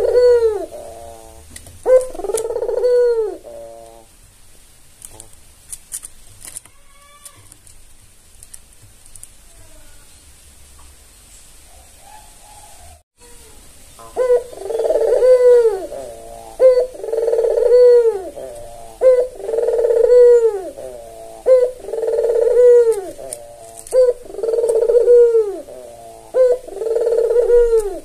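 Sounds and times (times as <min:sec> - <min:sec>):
dove cooing: 0:00.0 - 0:04.1, 0:14.1 - 0:28.0.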